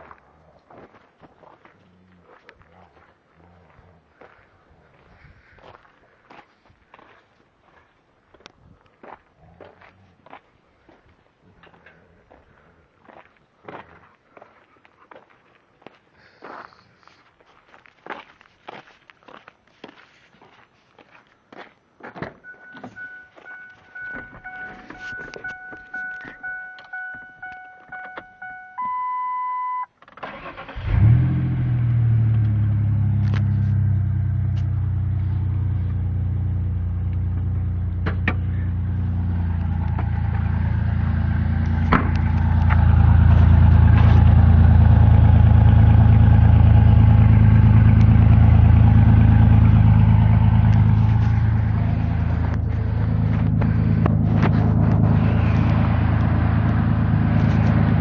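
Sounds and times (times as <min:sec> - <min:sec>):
warning chime: 0:22.4 - 0:29.9
truck engine cranking and starting: 0:30.0 - 0:58.0
engine idling through open exhaust: 0:31.0 - 0:58.0.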